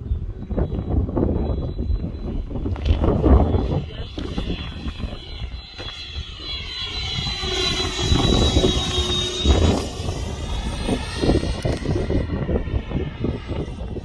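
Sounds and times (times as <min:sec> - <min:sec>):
model jet fan whine: 0:00.0 - 0:14.0
wind buffeting microphone: 0:00.0 - 0:14.0.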